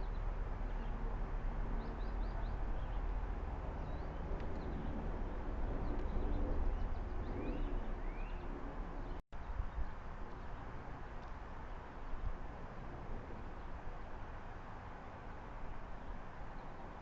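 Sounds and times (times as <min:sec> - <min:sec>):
low outdoor rumble: 0:00.0 - 0:17.0
birds chirping: 0:01.6 - 0:10.7
whistled bird notes: 0:06.3 - 0:08.6.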